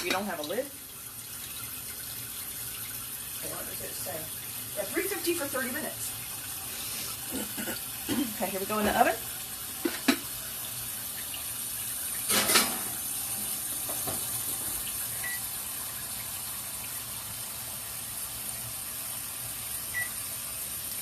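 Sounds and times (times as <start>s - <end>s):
kitchen tap running: 0.0s - 21.0s.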